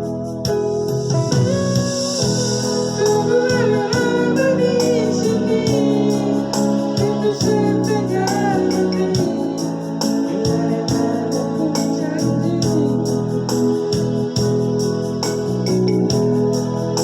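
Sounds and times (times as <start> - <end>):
organ-like keyboard melody: 0.0 - 17.0
steady beat: 0.5 - 17.0.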